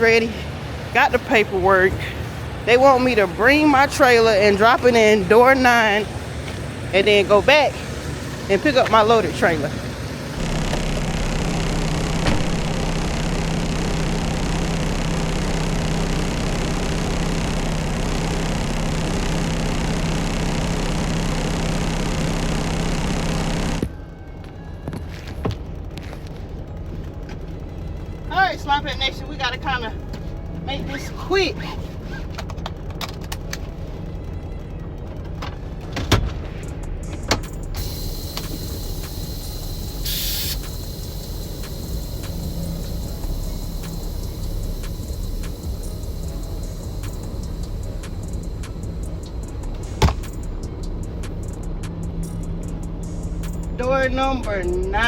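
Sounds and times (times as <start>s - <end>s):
diesel truck engine idling: 0.0s - 55.0s
air hiss: 37.4s - 50.5s.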